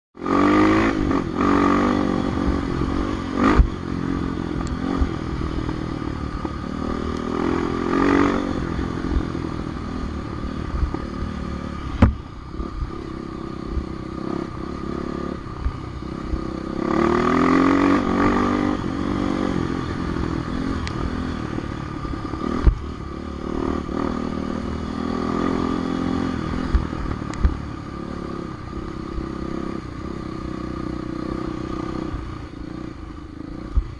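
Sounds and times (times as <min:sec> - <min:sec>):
dirt bike engine revving: 0:00.2 - 0:32.8
sharp knocks: 0:11.9 - 0:12.2.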